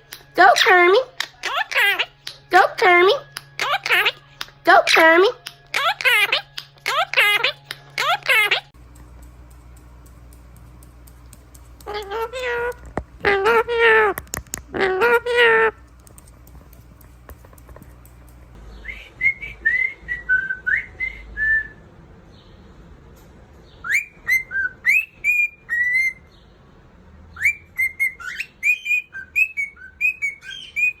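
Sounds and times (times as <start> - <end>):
parrot whistling: 23.8 - 26.2, 27.4 - 31.0.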